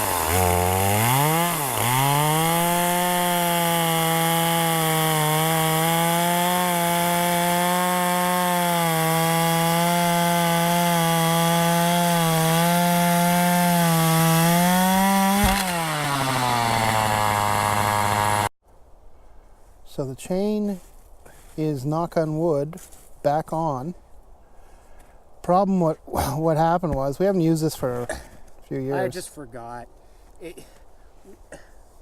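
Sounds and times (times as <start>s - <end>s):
chainsaw cutting wood: 0.0s - 18.5s.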